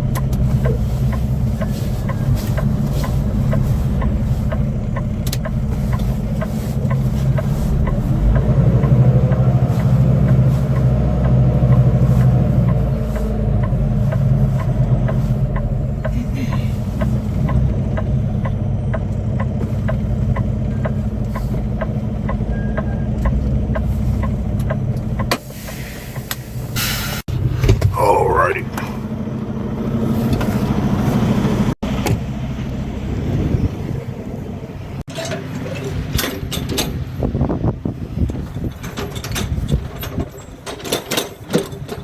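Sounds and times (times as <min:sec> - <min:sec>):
light regular ticking: 0:00.0 - 0:25.3
truck diesel engine running: 0:00.0 - 0:35.0.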